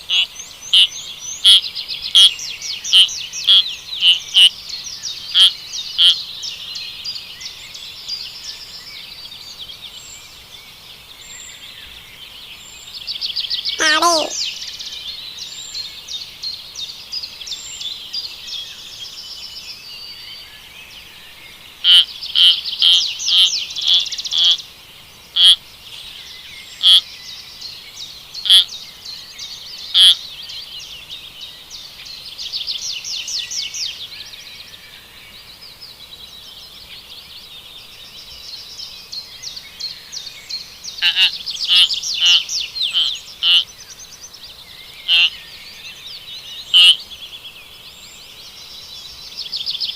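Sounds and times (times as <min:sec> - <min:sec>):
background chatter: 0:13.8 - 0:14.4
high-pitched chirping animal calls: 0:13.8 - 0:14.4, 0:45.1 - 0:45.3.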